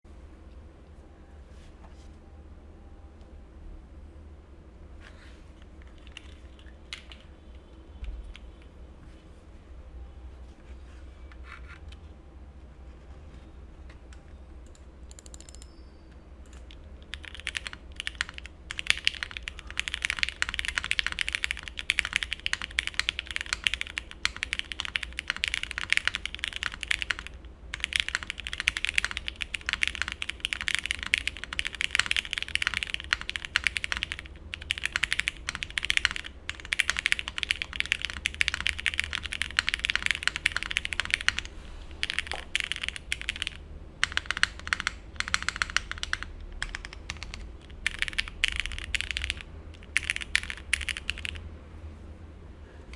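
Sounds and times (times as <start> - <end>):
mechanical keyboard typing: 5.8 - 7.3, 14.6 - 15.8, 16.4 - 51.4.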